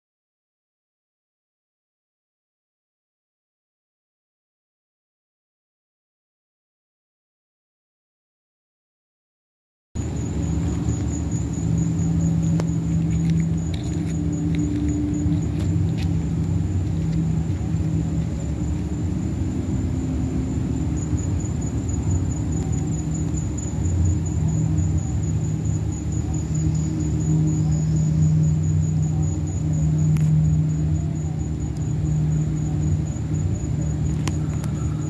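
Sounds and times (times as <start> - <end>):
low humming rumble: 10.0 - 35.0
faint ticks: 34.1 - 34.8.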